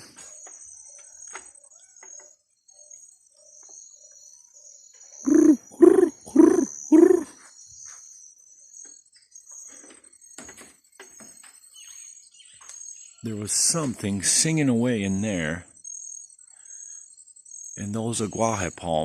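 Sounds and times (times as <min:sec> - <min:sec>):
bird calling low notes: 0:05.2 - 0:07.4
high-pitched insect drone: 0:05.3 - 0:07.4, 0:11.8 - 0:19.0.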